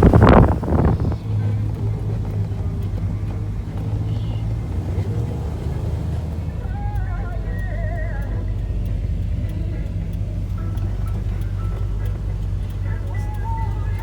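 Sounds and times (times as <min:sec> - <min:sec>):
wind gust on microphone: 0:00.0 - 0:06.3
car engine running: 0:00.0 - 0:14.0
faint music: 0:00.0 - 0:14.0.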